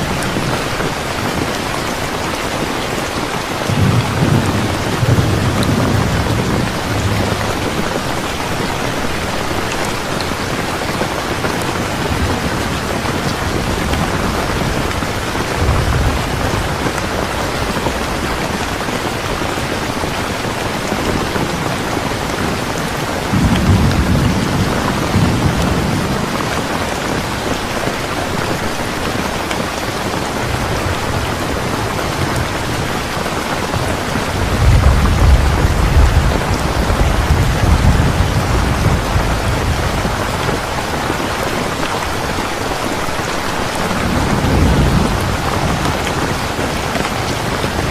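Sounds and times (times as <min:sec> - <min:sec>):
heavy rain: 0:00.0 - 0:47.9
low rolling thunder: 0:03.6 - 0:08.8, 0:11.1 - 0:19.1, 0:20.9 - 0:27.5, 0:33.7 - 0:40.9, 0:43.8 - 0:47.9.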